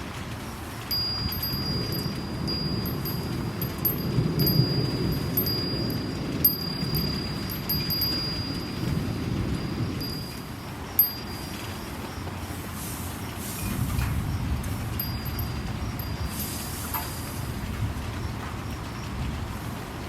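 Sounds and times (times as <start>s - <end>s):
steady rain: 0.0s - 20.0s
wind chime ringing: 0.9s - 12.5s, 14.9s - 17.4s.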